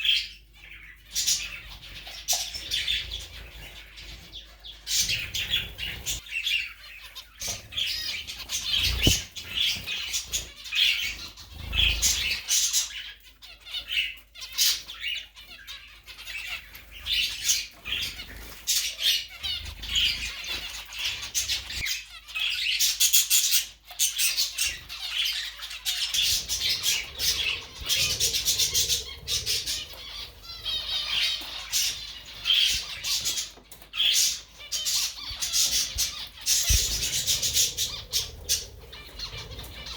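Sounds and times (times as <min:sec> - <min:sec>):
pet bird chirping and squawking: 0:04.9 - 0:12.5, 0:24.3 - 0:39.9.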